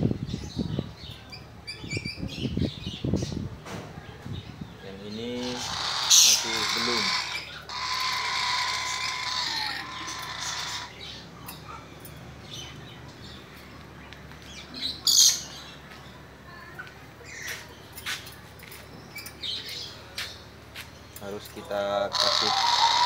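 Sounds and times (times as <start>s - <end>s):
parrot squawking: 5.4s - 11.2s, 22.1s - 23.0s.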